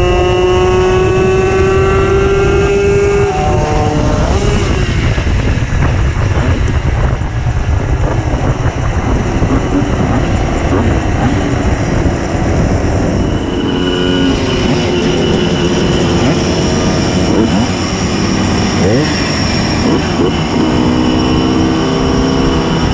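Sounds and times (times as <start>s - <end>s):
steadier engine note: 0.0s - 22.9s
two-stroke moped engine: 14.2s - 20.6s.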